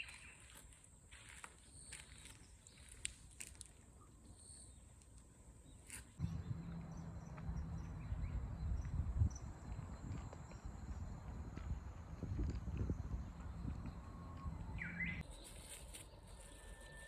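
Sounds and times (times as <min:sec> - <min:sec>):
low rumble: 0:06.2 - 0:15.2.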